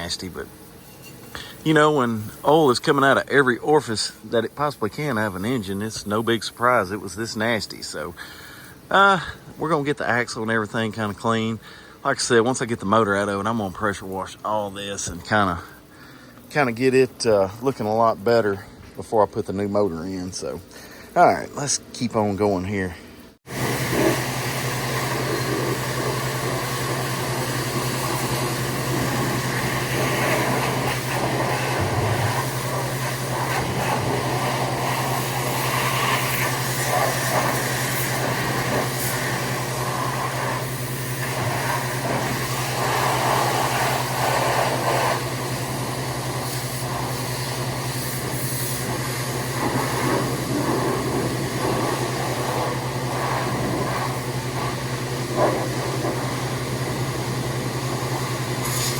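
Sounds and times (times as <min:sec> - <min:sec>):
pressure washer motor hum: 0:22.3 - 0:58.9
water spray hissing on metal: 0:23.5 - 0:58.9.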